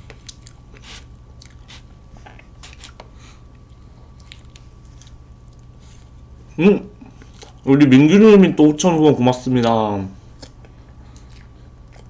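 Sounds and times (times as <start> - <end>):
chewing and mouth sounds: 0.0 - 6.2, 7.1 - 7.7, 9.6 - 12.0.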